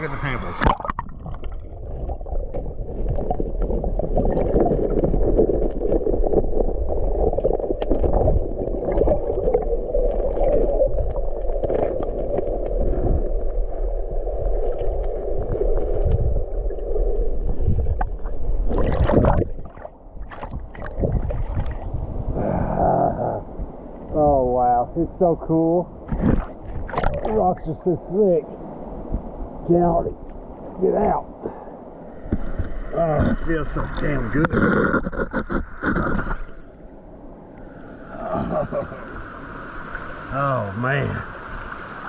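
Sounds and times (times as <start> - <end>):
muffled underwater river rushing: 0.0 - 42.0
water splash: 0.3 - 13.7, 17.9 - 22.0, 26.0 - 27.5.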